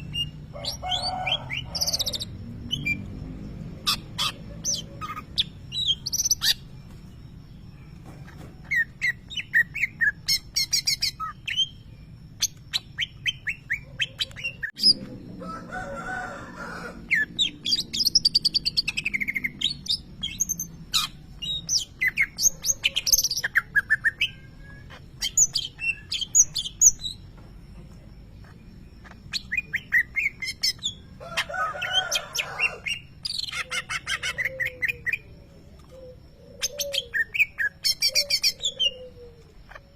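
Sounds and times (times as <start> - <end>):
bird chirping and whistling: 3.9 - 6.7, 8.6 - 11.8, 12.4 - 15.0, 17.2 - 27.2, 32.9 - 39.2.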